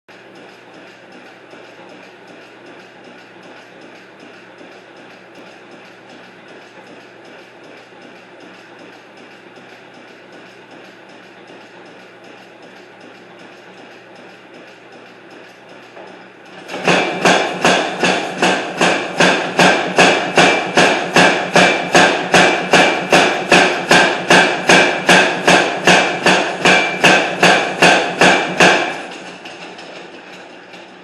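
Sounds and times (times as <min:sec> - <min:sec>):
hammer ringing on iron: 0:16.8 - 0:29.9.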